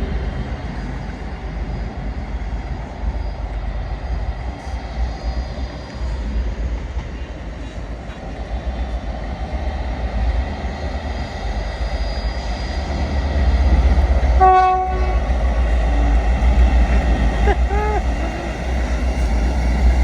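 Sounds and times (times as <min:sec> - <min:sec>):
train rumbling: 0:00.0 - 0:20.0
train horn toot: 0:14.4 - 0:16.2, 0:17.4 - 0:19.3.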